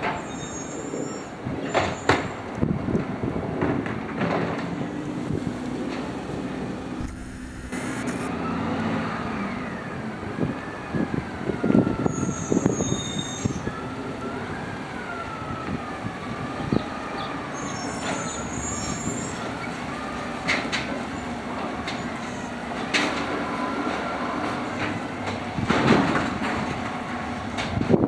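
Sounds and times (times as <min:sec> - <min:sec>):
high-pitched squeals: 0:07.0 - 0:08.3.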